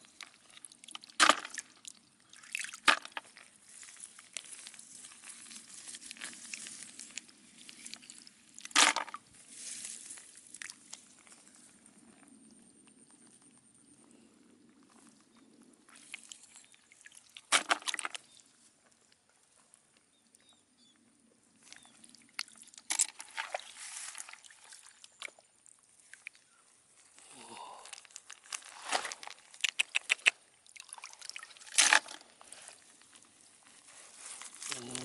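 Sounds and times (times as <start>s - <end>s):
water splashing and sloshing: 0.1s - 11.8s, 15.9s - 18.4s, 21.6s - 26.5s, 28.0s - 34.7s
sharp clicks: 29.6s - 30.4s.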